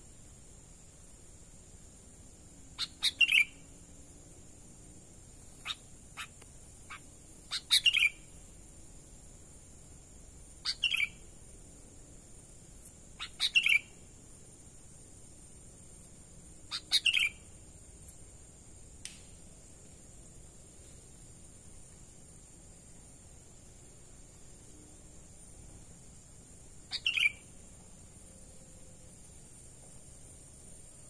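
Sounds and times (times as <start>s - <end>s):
faint high-pitched whine: 0.0s - 31.0s
bird calling: 2.8s - 3.5s, 5.6s - 8.2s, 13.2s - 13.9s, 16.7s - 17.4s, 26.9s - 27.4s.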